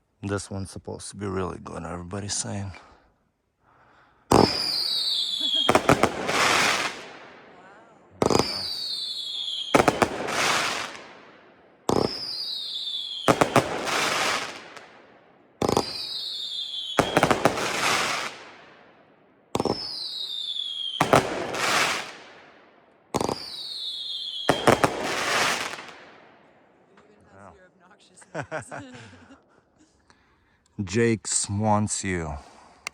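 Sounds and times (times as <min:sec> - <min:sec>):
firework falling whistle: 0:04.3 - 0:07.0, 0:08.2 - 0:10.9, 0:11.9 - 0:14.2, 0:15.7 - 0:18.3, 0:19.6 - 0:21.2, 0:23.2 - 0:25.6
firework break with crackling: 0:04.3 - 0:11.3, 0:11.9 - 0:15.0, 0:15.6 - 0:18.6, 0:19.6 - 0:22.5, 0:23.2 - 0:26.2.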